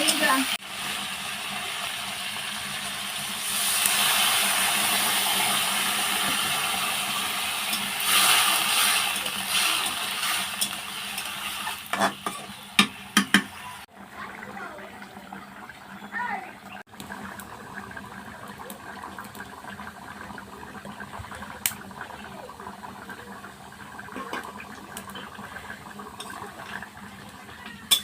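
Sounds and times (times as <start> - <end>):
food sizzling in hot oil: 0.0 - 28.0
sharp knocks against pan: 12.0 - 13.6.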